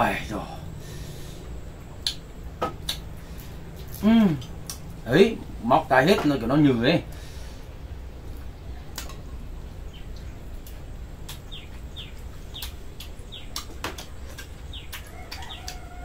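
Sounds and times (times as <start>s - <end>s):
small bird chirping: 9.3s - 16.0s
chicken calling: 14.4s - 16.0s.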